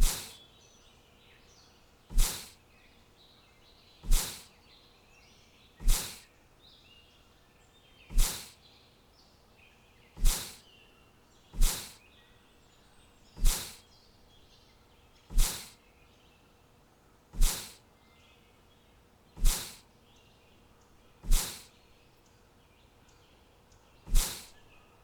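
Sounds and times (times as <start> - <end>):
whoosh bursts with low thud: 0.0 - 0.4, 2.1 - 2.5, 4.0 - 4.4, 5.8 - 6.2, 8.1 - 8.5, 10.2 - 10.6, 11.6 - 12.0, 13.4 - 13.8, 15.3 - 15.7, 17.4 - 17.8, 19.4 - 19.8, 21.2 - 21.7, 24.1 - 24.5
faint bird chirping: 0.0 - 25.0.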